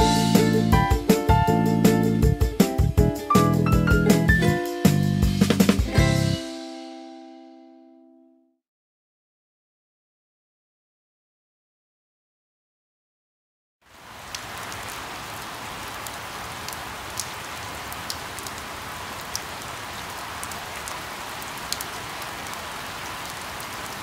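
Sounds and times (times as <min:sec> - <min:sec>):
steady rain falling: 0:13.8 - 0:24.0
raindrops ticking: 0:14.0 - 0:24.0.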